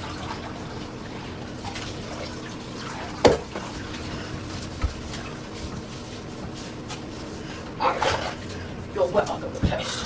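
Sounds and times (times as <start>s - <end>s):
bathwater sloshing and dripping: 0.0s - 10.0s.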